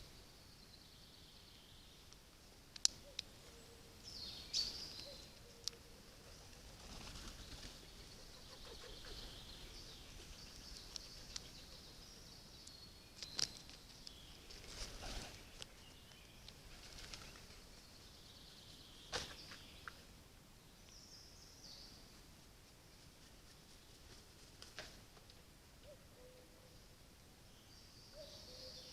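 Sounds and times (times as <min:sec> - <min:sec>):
distant birds chirping: 0:00.0 - 0:22.0.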